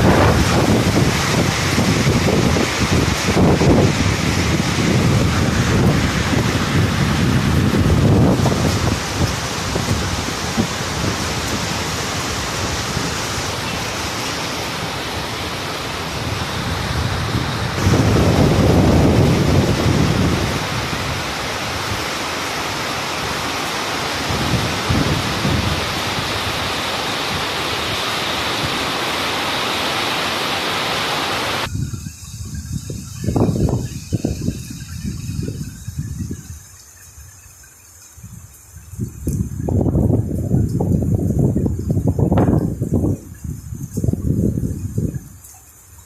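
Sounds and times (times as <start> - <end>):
rain hissing: 0.0 - 46.0.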